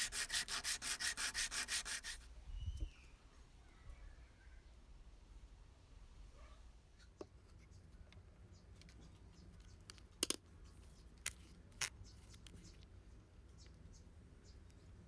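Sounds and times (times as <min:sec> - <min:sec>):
clicks of small hard objects: 0:09.8 - 0:10.4.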